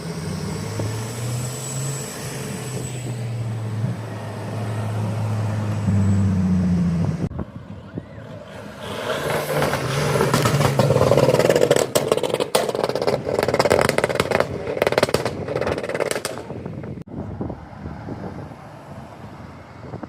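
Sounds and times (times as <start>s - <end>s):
car engine passing loudly: 0.0s - 20.0s
exhaust crackling: 8.0s - 17.1s.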